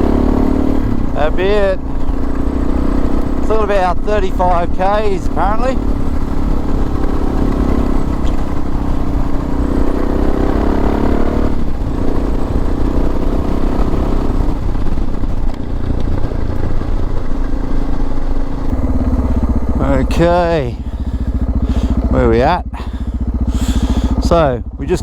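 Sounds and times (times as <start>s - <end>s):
wind rumble: 0.0s - 24.8s
motorcycle engine running: 0.0s - 25.0s.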